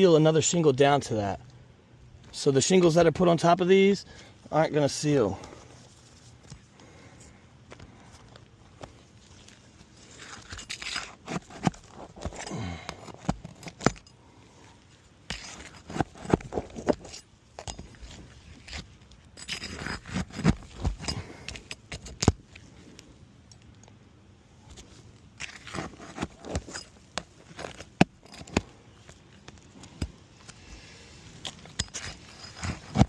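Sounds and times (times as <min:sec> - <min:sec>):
shingles scraping and tearing: 0:08.8 - 0:14.0, 0:15.2 - 0:22.8, 0:24.8 - 0:28.8, 0:31.4 - 0:33.0.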